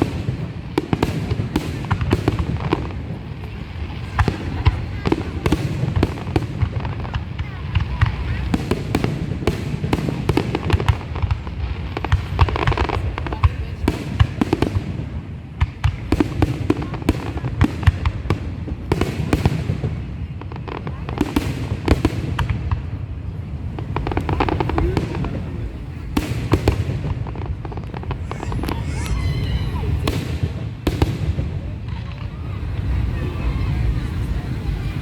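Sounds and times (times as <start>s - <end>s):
fireworks crackling and banging: 0.0s - 35.0s.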